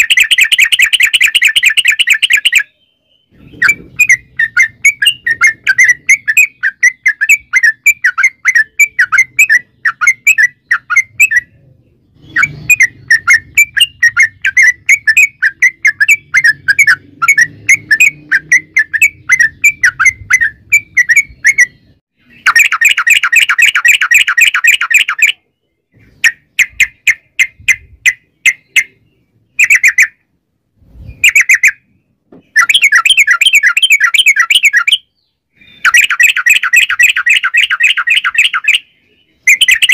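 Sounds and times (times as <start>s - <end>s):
bulbul chirping song: 0.0s - 39.9s.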